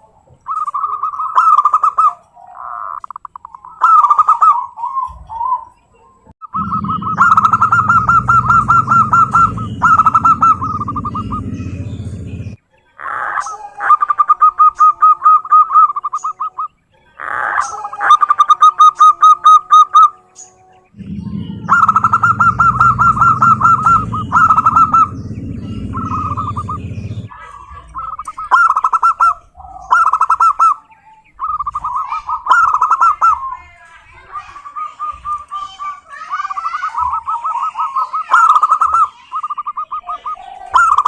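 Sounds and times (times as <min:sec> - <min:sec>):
doves cooing: 0:00.0 - 0:41.0
low rumble: 0:06.6 - 0:12.6, 0:21.0 - 0:27.3.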